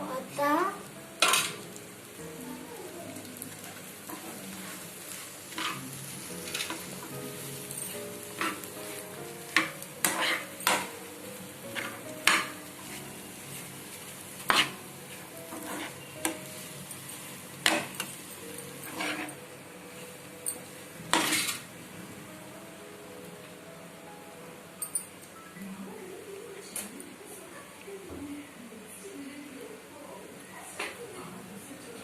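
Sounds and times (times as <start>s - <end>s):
faint oil sizzle: 0.0s - 21.8s
spoon scraping a pan: 5.5s - 5.8s, 9.6s - 10.9s, 11.8s - 13.0s, 14.4s - 14.8s, 15.5s - 16.4s, 18.8s - 19.4s, 21.1s - 21.7s.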